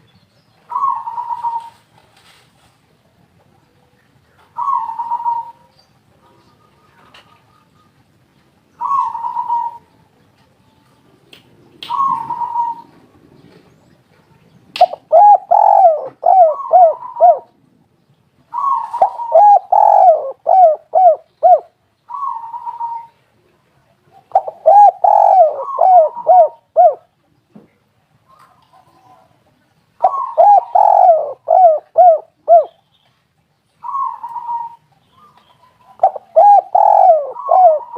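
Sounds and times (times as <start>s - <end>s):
dove cooing: 0.7s - 1.9s, 4.4s - 8.0s, 8.8s - 9.9s, 11.9s - 13.6s, 14.8s - 17.6s, 18.5s - 23.3s, 24.1s - 27.1s, 30.0s - 32.8s, 33.8s - 37.9s.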